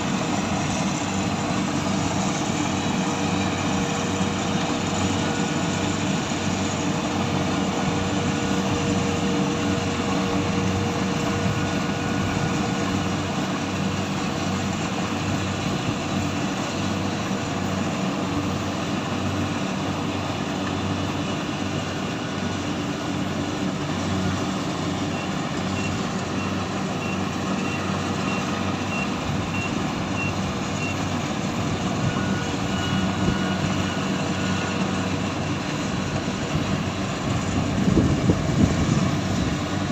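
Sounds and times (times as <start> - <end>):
harvester engine droning: 0.0 - 39.9
short high warning beeps: 25.1 - 31.0, 32.0 - 34.8.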